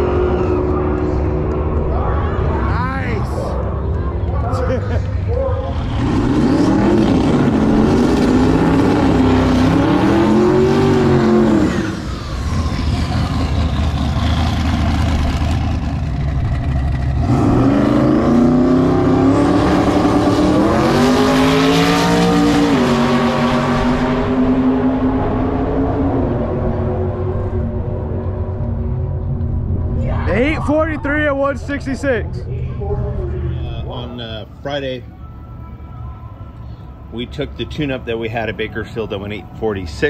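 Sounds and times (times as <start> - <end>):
car engine revving: 5.4 - 32.1.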